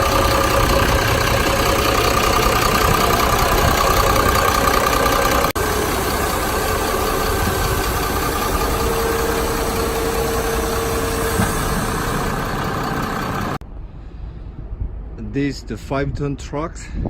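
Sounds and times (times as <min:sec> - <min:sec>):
diesel truck engine idling: 0:00.0 - 0:13.6.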